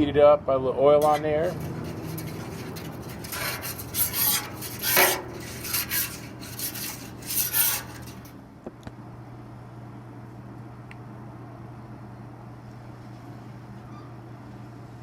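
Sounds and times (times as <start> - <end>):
scraping on steel griddle: 1.0 - 8.4.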